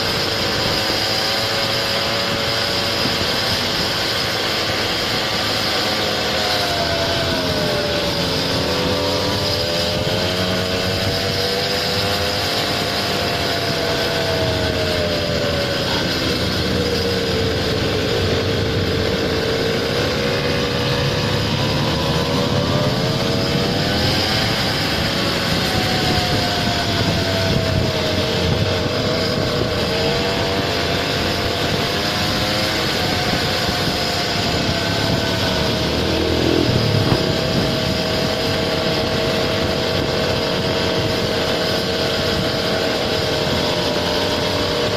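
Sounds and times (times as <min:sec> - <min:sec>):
road and wind noise: 0:00.0 - 0:44.9
small scooter engine running: 0:00.0 - 0:44.9.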